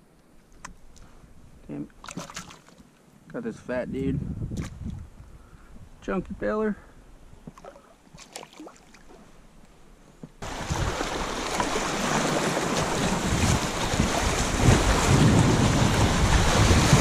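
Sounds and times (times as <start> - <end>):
wind buffeting microphone: 3.8 - 6.4, 10.4 - 17.0.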